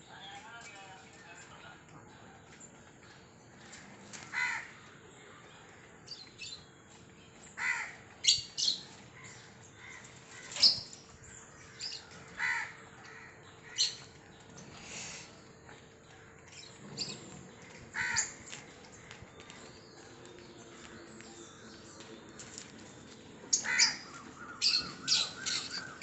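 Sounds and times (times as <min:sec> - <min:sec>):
birds squawking: 0:03.8 - 0:04.8, 0:07.6 - 0:11.0, 0:11.7 - 0:14.2, 0:16.6 - 0:18.8, 0:23.5 - 0:26.0.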